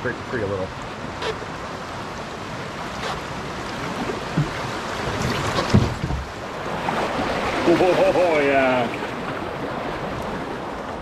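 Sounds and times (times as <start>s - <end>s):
rushing whitewater: 0.0s - 11.0s
dull knocks: 4.3s - 6.3s.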